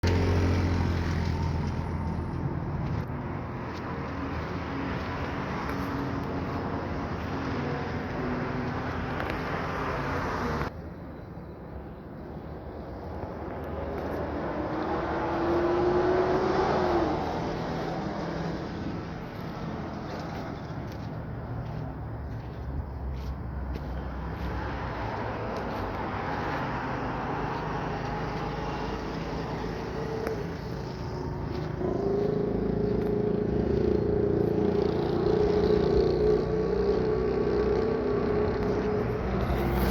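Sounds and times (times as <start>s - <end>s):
low engine hum: 0.0s - 10.7s, 12.7s - 39.9s
traffic noise: 0.0s - 39.9s
road noise hiss: 11.7s - 36.3s, 37.2s - 39.9s.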